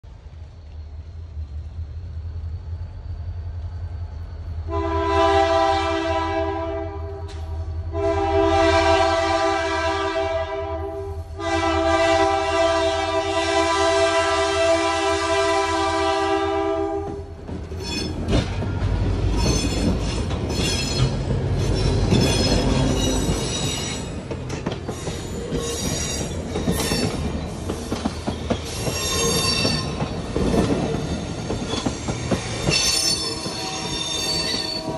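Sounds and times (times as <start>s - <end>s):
locomotive rumbling past: 0.0s - 34.9s
locomotive horn chord: 4.7s - 17.2s
wheel squeal and clatter: 17.6s - 34.9s.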